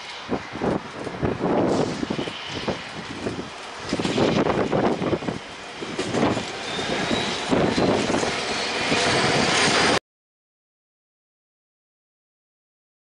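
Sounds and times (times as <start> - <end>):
wheels clattering over rail joints: 0.0 - 10.0
faint high wheel squeal: 6.5 - 9.4.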